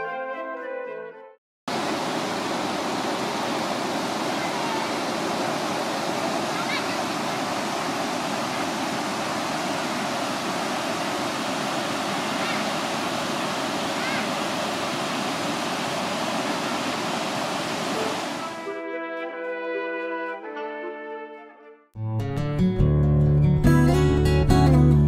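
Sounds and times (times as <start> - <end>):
river water pouring over weir: 1.7 - 18.6
music with brass instruments: 18.4 - 21.8.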